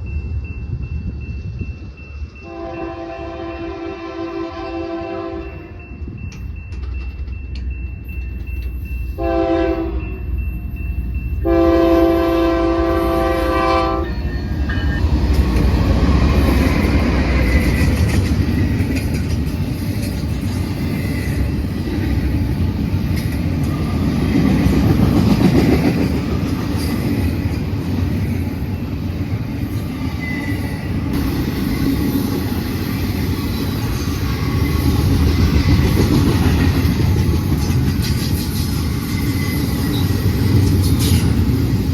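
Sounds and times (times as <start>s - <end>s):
freight train rumbling past: 0.0s - 41.9s
locomotive air horn: 2.4s - 5.8s, 9.2s - 10.0s, 11.4s - 14.8s
train cars clattering on rails: 5.9s - 9.9s, 13.2s - 41.9s.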